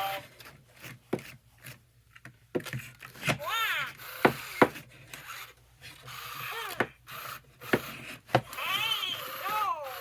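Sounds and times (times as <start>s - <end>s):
toy babbling in synthetic voice: 6.2s - 6.9s, 8.5s - 10.0s.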